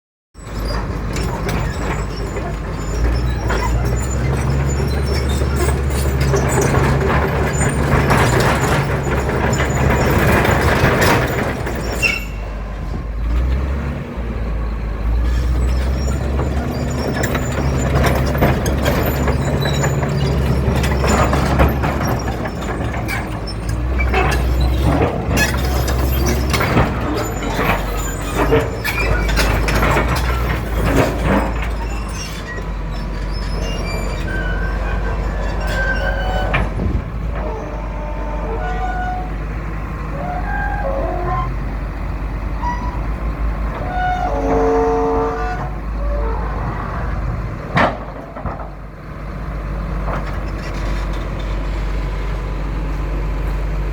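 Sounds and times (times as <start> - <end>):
bulldozer diesel engine running: 0.4 - 53.9
metallic knocks and clanks: 15.4 - 37.5.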